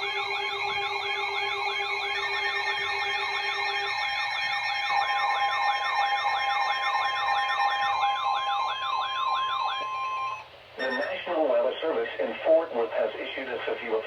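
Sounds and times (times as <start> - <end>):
steady alert tones: 0.0 - 11.2
warbling electronic siren tone: 0.0 - 11.2.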